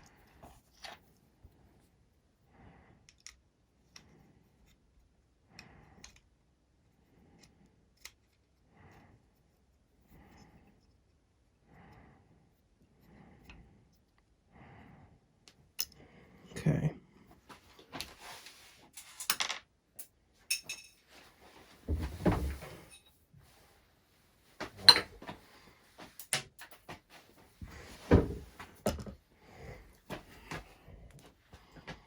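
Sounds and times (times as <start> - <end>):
tools clicking and knocking on workbench: 24.6 - 25.4, 27.7 - 29.2.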